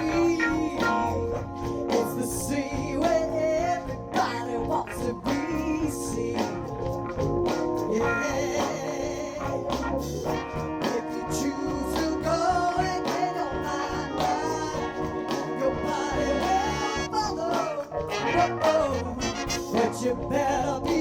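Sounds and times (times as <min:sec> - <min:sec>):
person singing: 0:00.0 - 0:21.0
soul band playing live: 0:00.0 - 0:21.0.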